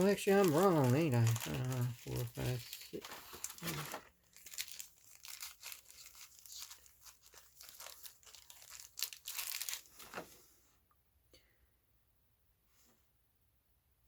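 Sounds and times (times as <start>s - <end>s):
foil wrappers crinkling: 0.0s - 10.4s.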